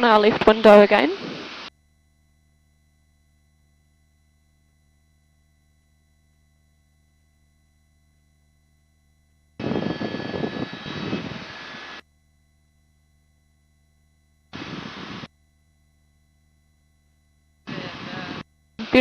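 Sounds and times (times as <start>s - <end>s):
helicopter cabin noise over intercom: 0.0s - 1.4s, 17.7s - 19.0s
faint electronic hum: 0.0s - 19.0s.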